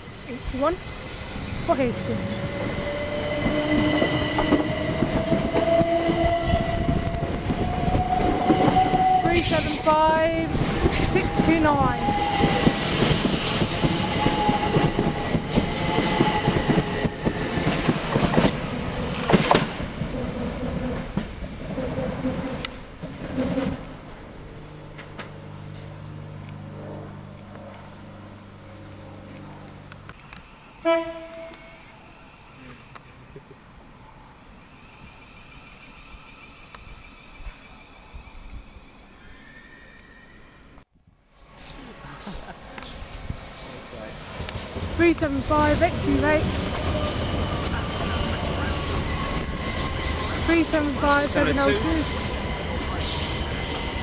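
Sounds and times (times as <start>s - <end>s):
electric train motors whining: 0.0s - 21.5s, 42.6s - 54.0s
train wheels clacking on rails: 0.0s - 24.0s, 41.6s - 54.0s.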